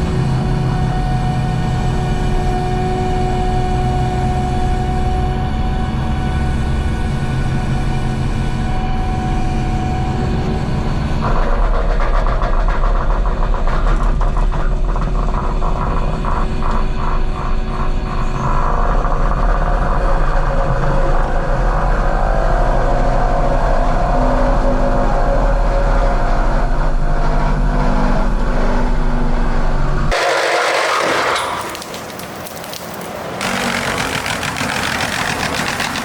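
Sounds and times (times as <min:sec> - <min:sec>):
diesel engine running hard: 0:00.0 - 0:30.3, 0:33.3 - 0:36.0
mulching head grinding brush: 0:30.1 - 0:36.0.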